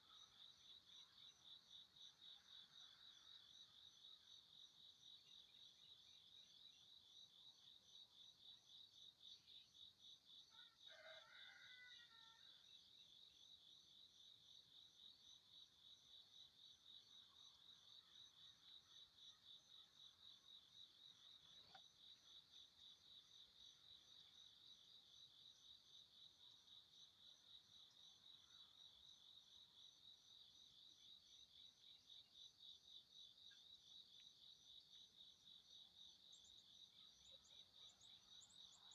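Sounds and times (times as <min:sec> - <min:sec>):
insect chirping: 0:00.0 - 0:11.6, 0:12.8 - 0:38.9
distant rooster call: 0:10.5 - 0:12.6.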